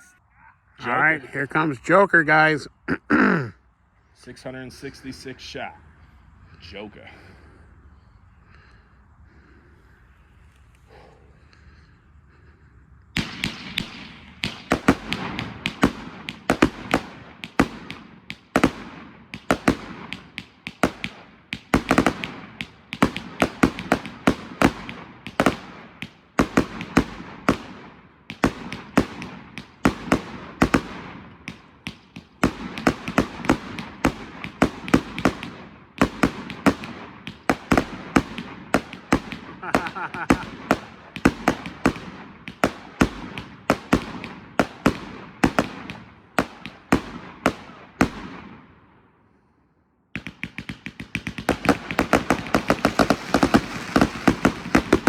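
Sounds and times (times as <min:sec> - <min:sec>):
fireworks bangs and cracks: 0:13.2 - 0:48.6, 0:50.2 - 0:55.0.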